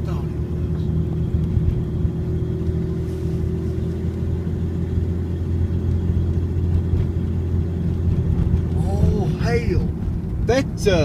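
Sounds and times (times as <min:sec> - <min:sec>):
car engine hum: 0:00.0 - 0:11.0
road noise: 0:00.0 - 0:11.0.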